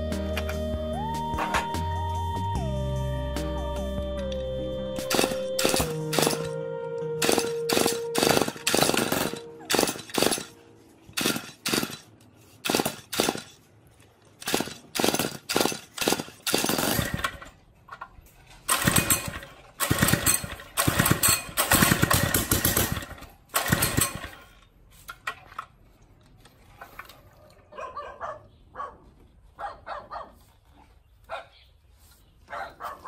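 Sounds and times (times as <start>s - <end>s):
recoil starter cranking engine: 14.4s - 17.5s, 18.6s - 24.7s.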